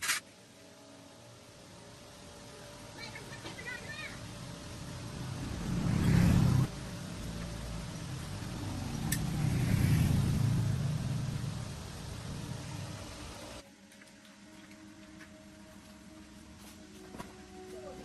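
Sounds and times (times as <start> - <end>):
truck engine rumbling: 3.0 - 13.6.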